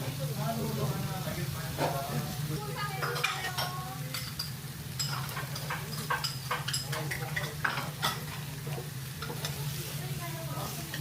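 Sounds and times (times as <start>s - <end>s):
beef sizzling on grill: 0.0s - 11.0s
tongs and dishes clinking: 2.8s - 9.7s, 10.6s - 11.0s.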